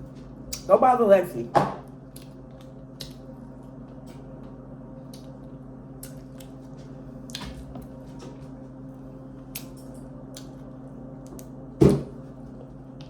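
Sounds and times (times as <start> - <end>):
steady low hum: 0.0 - 13.0
wet chewing of shellfish: 9.4 - 11.5.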